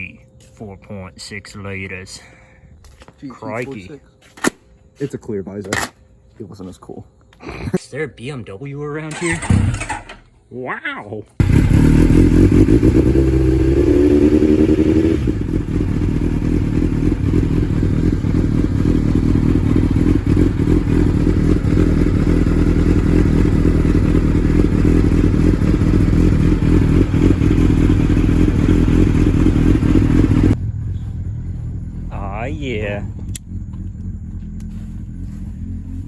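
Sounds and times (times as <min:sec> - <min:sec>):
vehicle engine revving: 0:11.4 - 0:36.0.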